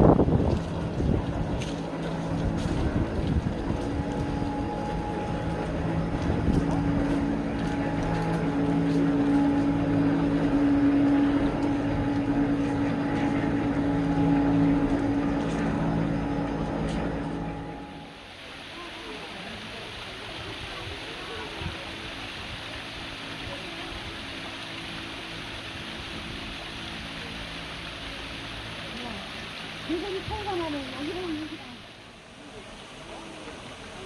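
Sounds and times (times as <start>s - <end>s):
rumbling noise: 0.0s - 32.2s
machine humming: 1.2s - 18.6s.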